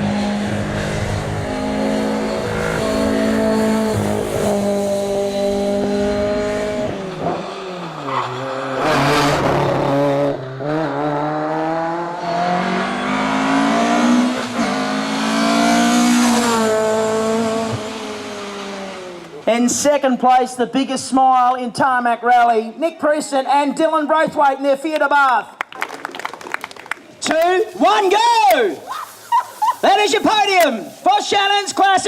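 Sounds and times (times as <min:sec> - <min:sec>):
rally car engine revving: 0:00.0 - 0:19.4.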